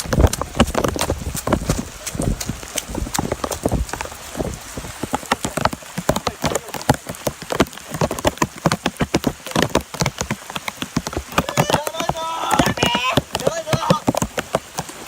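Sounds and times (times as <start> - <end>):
heavy rain: 0.0 - 15.0.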